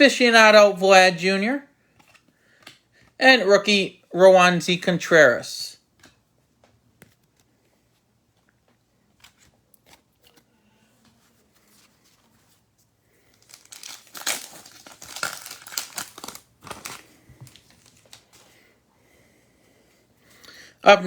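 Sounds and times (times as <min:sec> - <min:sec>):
card pack wrapper tearing: 0:13.4 - 0:18.4.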